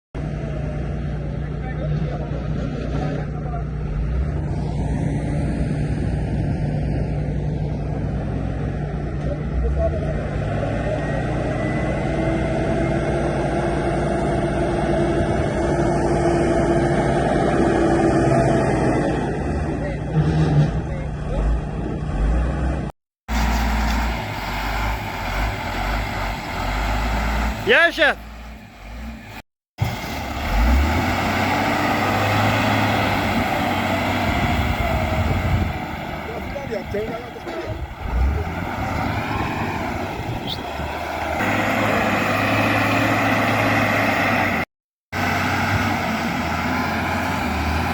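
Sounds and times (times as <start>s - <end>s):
heavy diesel engine running: 23.3s - 47.9s.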